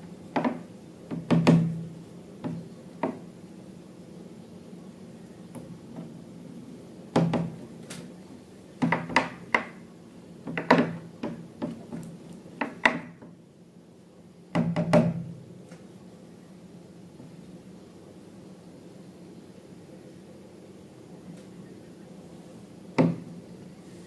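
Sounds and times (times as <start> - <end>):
objects knocking and tapping: 0.3 - 1.8, 2.4 - 3.2, 7.2 - 7.6, 8.8 - 9.8, 10.4 - 13.3.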